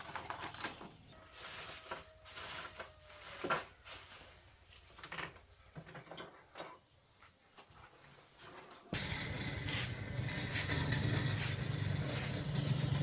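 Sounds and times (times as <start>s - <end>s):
scattered knocks clicks and scrapes: 8.6s - 13.0s.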